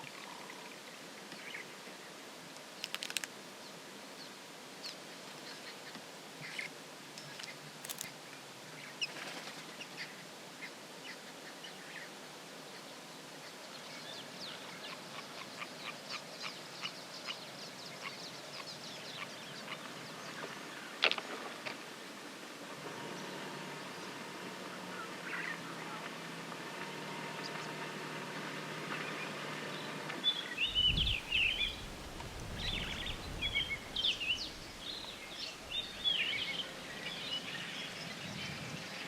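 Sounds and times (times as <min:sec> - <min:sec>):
steady background hiss: 0:00.0 - 0:39.0
birds chirping: 0:23.0 - 0:39.0.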